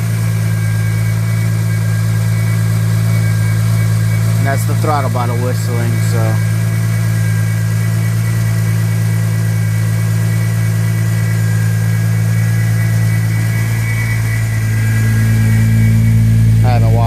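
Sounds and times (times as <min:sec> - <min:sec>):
car engine idling: 0:00.0 - 0:17.0
faint steady whistle: 0:00.1 - 0:17.0.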